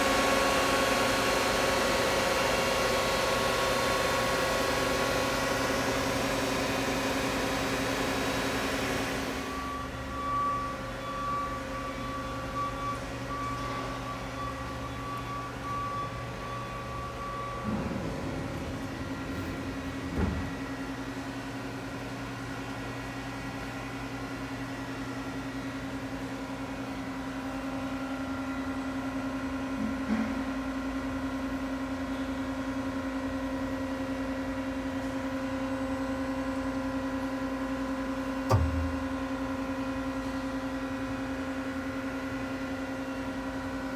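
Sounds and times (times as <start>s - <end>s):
machine hum with constant tones: 0.0s - 24.3s, 25.8s - 43.9s
short thud: 38.5s - 39.4s.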